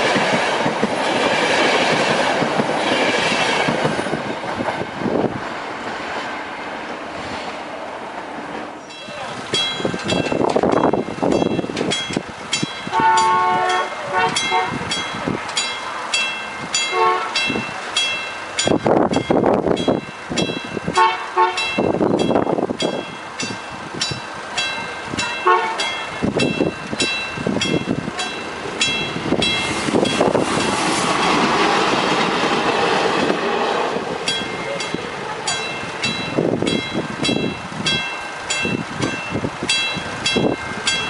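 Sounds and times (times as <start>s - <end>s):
train passing: 0.0s - 41.0s
train horn toots: 12.9s - 14.8s, 16.9s - 17.4s, 20.9s - 21.8s, 25.4s - 25.9s.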